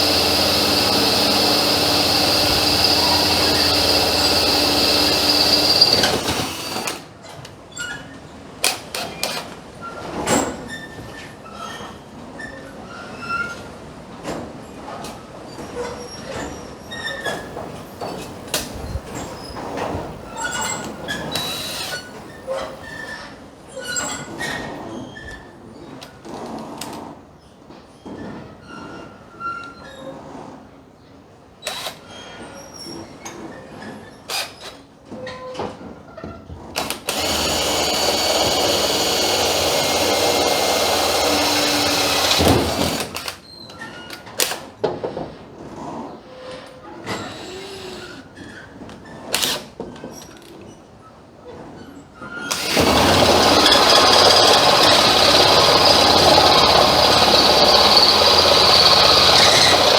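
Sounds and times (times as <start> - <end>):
short high squeals: 0.0 - 6.9
power tool running: 0.0 - 7.1, 17.4 - 23.1, 36.8 - 43.4, 47.1 - 48.2, 52.5 - 59.9.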